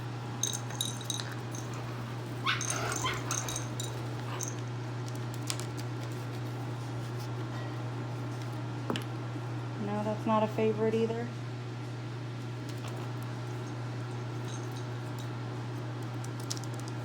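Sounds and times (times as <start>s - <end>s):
steady low hum: 0.0s - 16.0s
parrot chirping and squawking: 1.8s - 4.4s.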